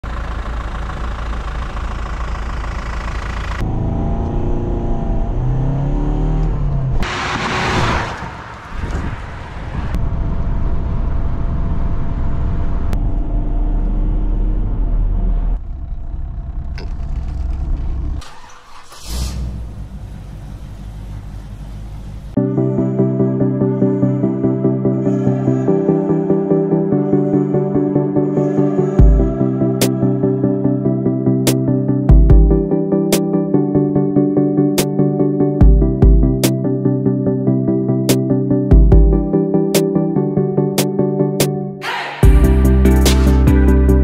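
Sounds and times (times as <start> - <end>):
driving noise: 0.0 - 22.4
car engine revving: 2.3 - 22.4.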